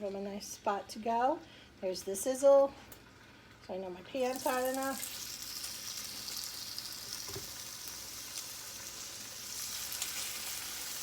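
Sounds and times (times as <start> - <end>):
chicken sizzling in hot oil: 4.2 - 11.0.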